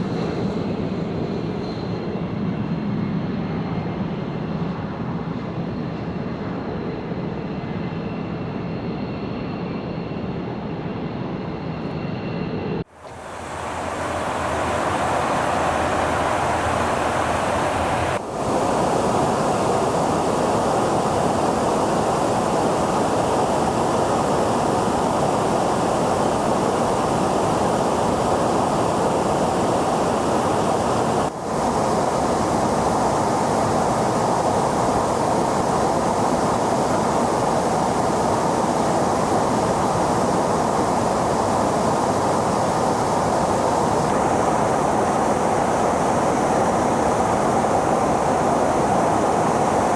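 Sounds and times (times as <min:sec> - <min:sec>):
jet engine rushing: 0:11.0 - 0:49.9.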